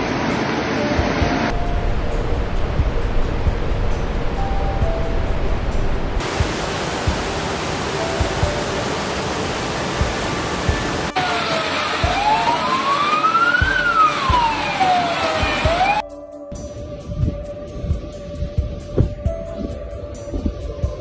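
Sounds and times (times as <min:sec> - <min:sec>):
floodwater rushing: 0:00.0 - 0:16.0
siren wailing: 0:10.7 - 0:16.0.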